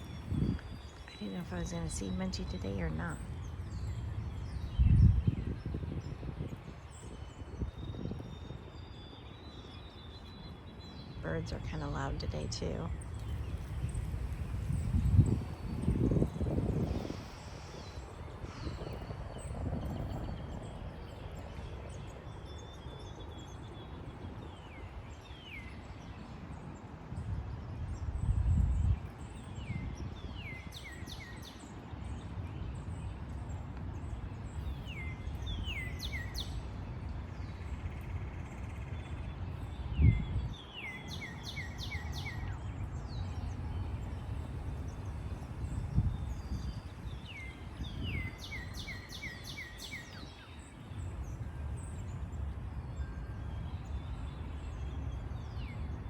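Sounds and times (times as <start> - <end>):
low background noise: 0.0 - 4.6
birds chirping: 0.0 - 6.1, 6.9 - 24.1.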